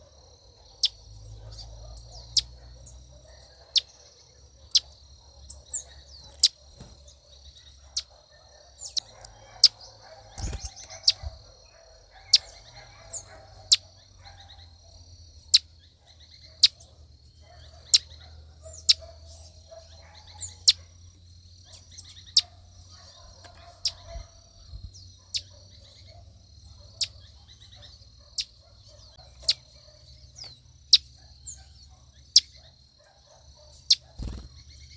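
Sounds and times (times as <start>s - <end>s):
bird chorus: 0.0s - 34.9s
bird sharp falling chirp: 10.3s - 11.3s, 34.2s - 34.7s.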